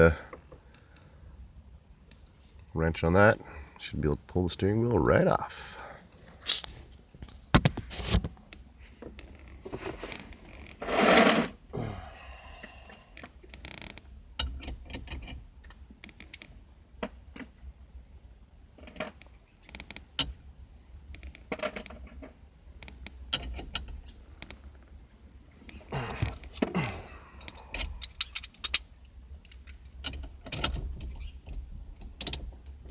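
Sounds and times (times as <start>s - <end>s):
metal clicks and clanks of tool: 27.4s - 32.8s.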